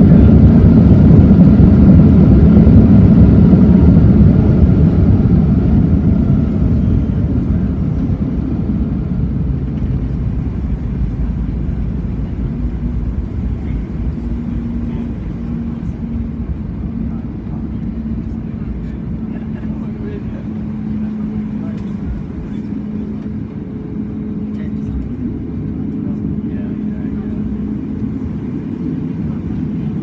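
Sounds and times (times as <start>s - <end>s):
airplane cabin rumble: 0.0s - 30.0s
faint steady hum: 9.7s - 23.2s.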